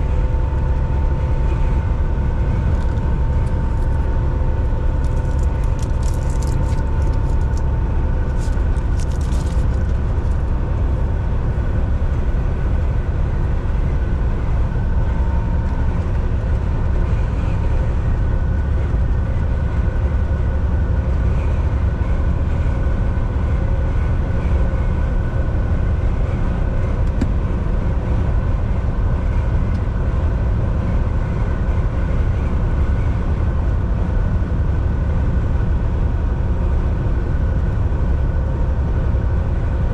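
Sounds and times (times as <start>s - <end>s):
faint steady whine: 0.0s - 39.9s
truck engine and tyres droning: 0.0s - 39.9s.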